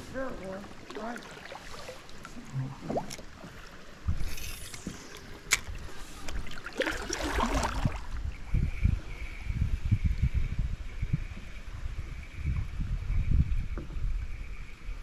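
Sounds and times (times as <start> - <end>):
water splashing around kayak: 0.0 - 8.7.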